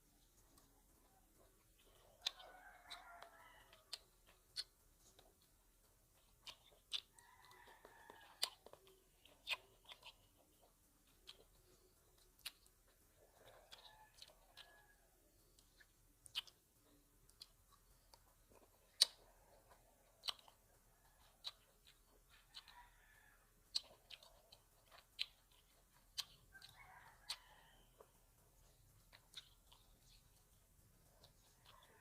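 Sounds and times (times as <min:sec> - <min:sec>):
person chewing grapes: 0:00.0 - 0:32.0.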